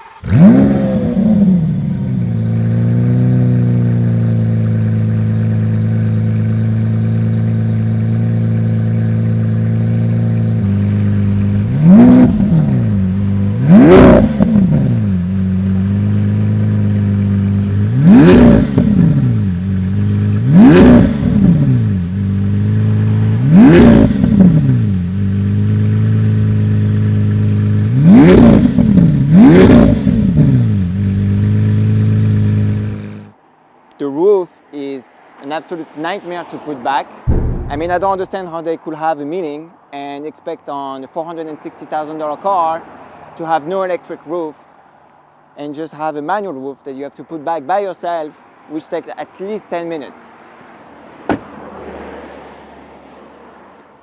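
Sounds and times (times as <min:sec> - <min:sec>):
engine throttle blips: 0:00.0 - 0:02.8, 0:04.5 - 0:31.4, 0:37.3 - 0:38.4
car engine starting and idling: 0:00.0 - 0:33.3, 0:37.3 - 0:38.4.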